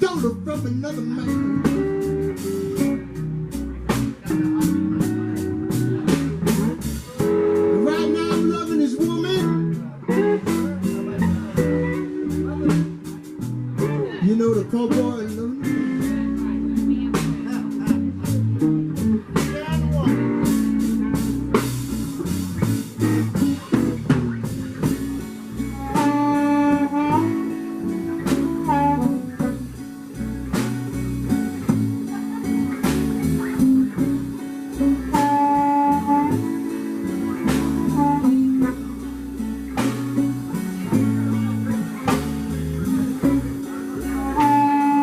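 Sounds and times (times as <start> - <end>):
blues band playing: 0.0 - 45.0
lead instrument bending high notes: 24.8 - 32.6.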